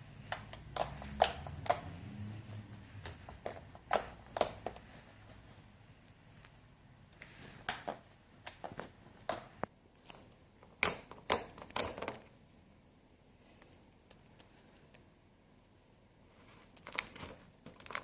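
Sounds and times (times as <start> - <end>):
slime clicking by hand: 0.2 - 2.0, 2.8 - 4.8, 10.6 - 12.2.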